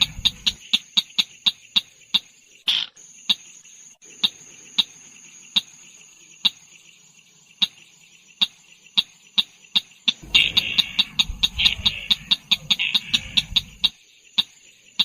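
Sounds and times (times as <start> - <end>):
bird sharp tut calls: 0.0 - 3.5, 8.4 - 15.0
high-pitched insect trill: 0.0 - 15.0.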